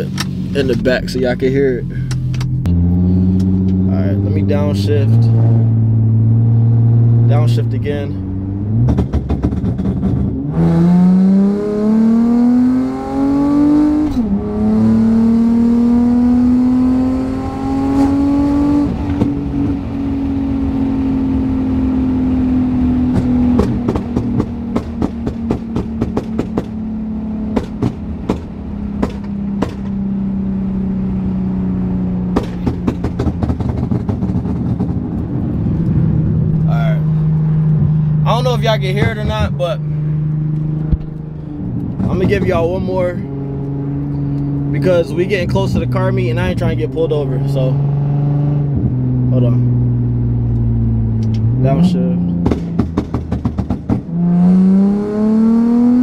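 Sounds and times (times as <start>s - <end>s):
exhaust pops and crackles: 0.0s - 2.7s, 8.8s - 10.4s, 18.9s - 19.8s, 23.0s - 26.8s, 27.5s - 30.0s, 32.2s - 36.7s, 37.7s - 39.8s, 40.5s - 43.2s, 50.5s - 54.2s
car engine revving hard: 8.2s - 35.1s, 36.0s - 56.0s.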